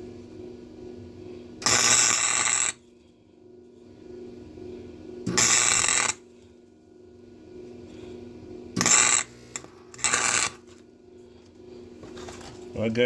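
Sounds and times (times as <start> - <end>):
steady low hum: 0.0 - 13.0
welding arc crackling: 1.6 - 2.8.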